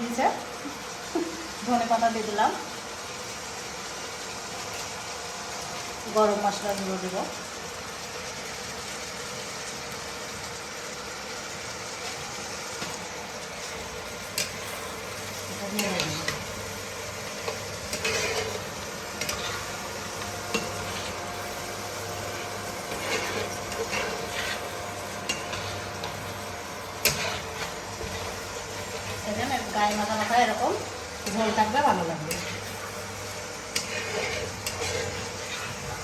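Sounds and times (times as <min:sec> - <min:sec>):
curry sizzling in a pan: 0:00.0 - 0:36.0
spoon scraping and knocking a pan: 0:17.4 - 0:21.2, 0:22.8 - 0:26.3, 0:27.0 - 0:29.3, 0:33.7 - 0:36.0.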